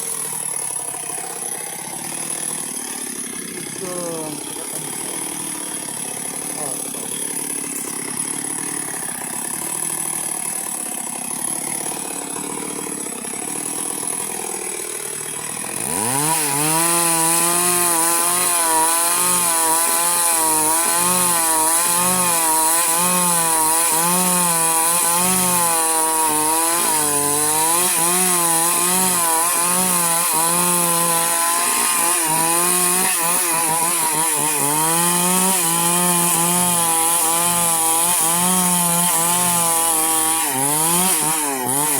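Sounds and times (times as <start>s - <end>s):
chainsaw cutting wood: 0.0s - 41.9s
chainsaw idling: 0.0s - 41.9s.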